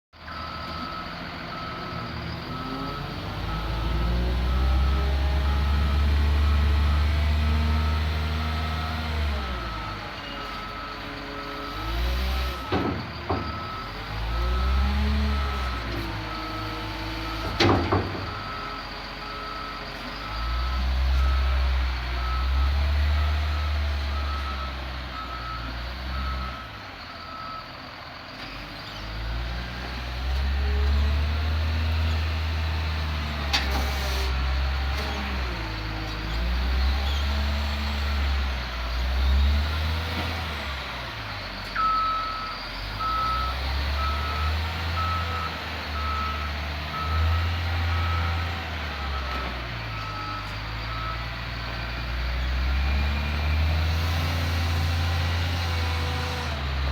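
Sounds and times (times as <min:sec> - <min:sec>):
reversing alarm beeping: 0:00.3 - 0:27.8, 0:41.1 - 0:51.5
diesel engine revving: 0:00.3 - 0:56.9.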